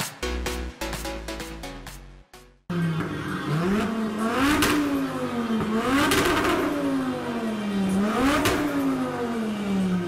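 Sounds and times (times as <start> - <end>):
car engine revving: 2.7 - 10.0.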